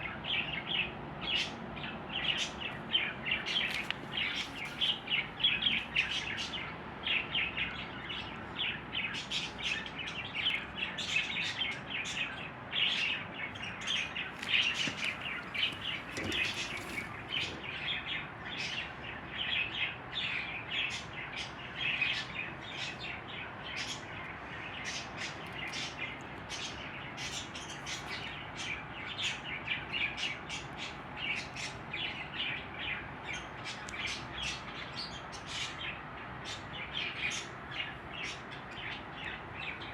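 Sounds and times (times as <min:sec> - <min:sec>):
budgerigars chirping: 0:11.3 - 0:18.8.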